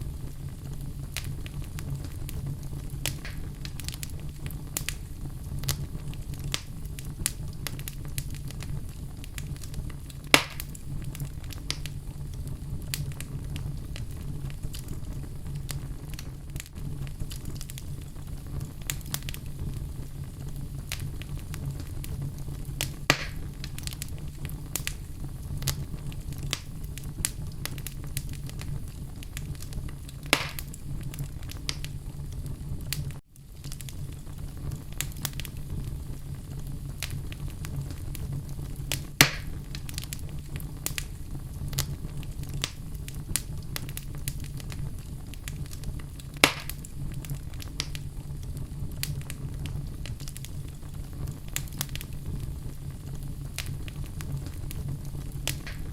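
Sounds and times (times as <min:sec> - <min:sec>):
fire crackling: 0:00.0 - 0:55.9
flames rumbling: 0:00.0 - 0:55.9
loud wood pops: 0:03.1 - 0:03.5, 0:10.3 - 0:10.8, 0:23.1 - 0:23.4, 0:30.3 - 0:30.8, 0:39.2 - 0:39.6, 0:46.4 - 0:46.8, 0:55.5 - 0:55.9.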